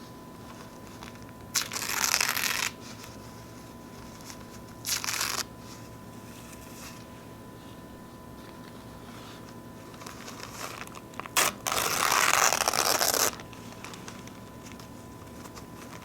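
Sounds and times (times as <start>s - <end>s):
paper napkins tearing: 1.0s - 3.0s, 4.1s - 5.5s, 10.0s - 16.0s.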